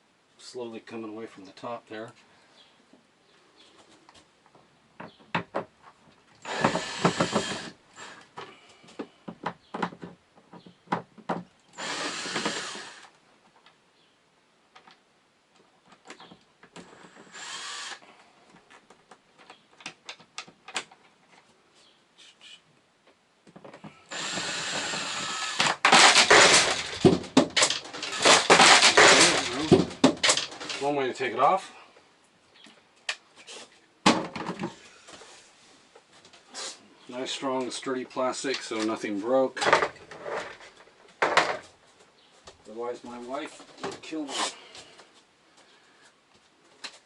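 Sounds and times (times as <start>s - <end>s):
power drill driving screws: 6.4s - 8.3s, 11.8s - 13.1s, 16.8s - 18.0s, 24.1s - 30.9s.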